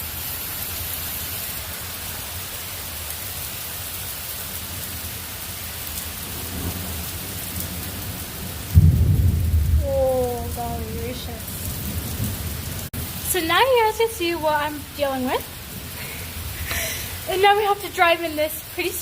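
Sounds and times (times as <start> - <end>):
steady rain: 0.0 - 19.0
low rumble of thunder: 6.1 - 17.4
loud thunderclap: 6.2 - 13.6.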